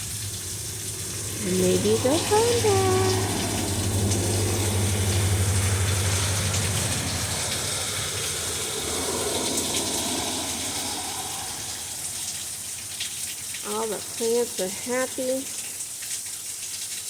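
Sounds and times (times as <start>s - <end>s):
low rumble: 0.0s - 13.2s
heavy rain falling: 0.0s - 16.9s.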